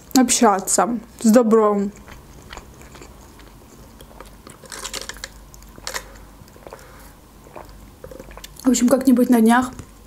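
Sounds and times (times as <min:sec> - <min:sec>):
wet chewing clicks and smacks: 0:01.9 - 0:06.8, 0:07.4 - 0:08.7.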